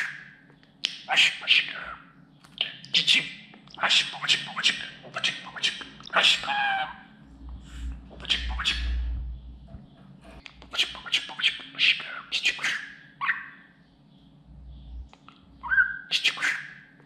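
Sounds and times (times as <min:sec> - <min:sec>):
budgerigar chattering: 0:00.9 - 0:02.0, 0:02.6 - 0:07.0, 0:08.1 - 0:09.1, 0:10.6 - 0:13.6, 0:15.6 - 0:16.9
low rumble: 0:07.2 - 0:10.4.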